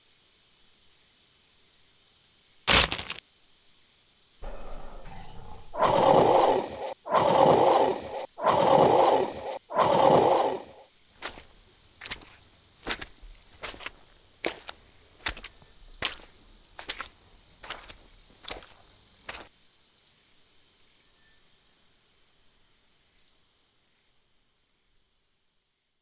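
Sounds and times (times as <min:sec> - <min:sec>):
sharp cracks and knocks: 0:02.7 - 0:03.2
animal roars: 0:04.4 - 0:11.5.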